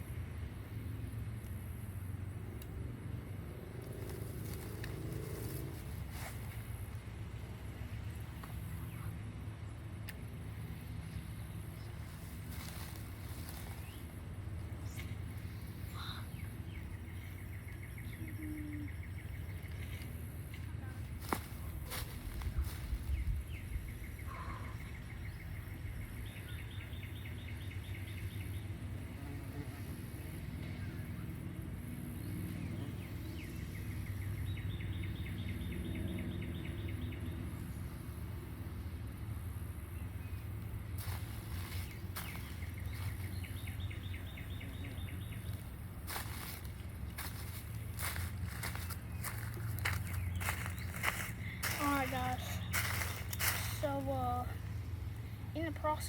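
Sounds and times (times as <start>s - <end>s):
steady low rumble: 0.0s - 56.0s
bird chirping: 14.7s - 20.2s, 40.0s - 56.0s.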